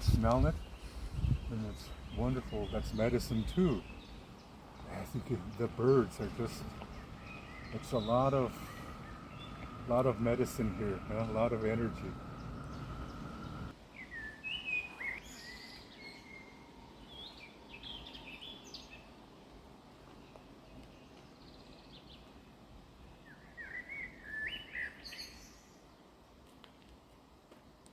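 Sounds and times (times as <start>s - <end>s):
songbirds chirping: 0.0s - 19.2s
faint outdoor hiss: 0.0s - 27.9s.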